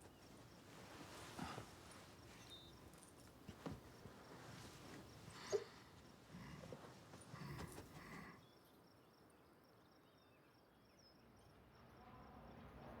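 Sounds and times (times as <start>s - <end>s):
soft knocks and rustles: 2.9s - 5.2s.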